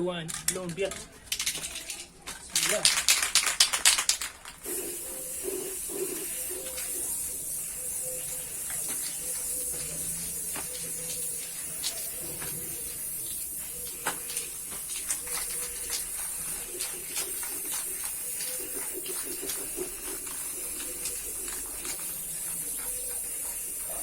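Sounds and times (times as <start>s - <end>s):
rapid clicking and rattling: 0.3s - 4.8s, 13.6s - 24.0s
paint spray gun hissing: 2.6s - 24.0s.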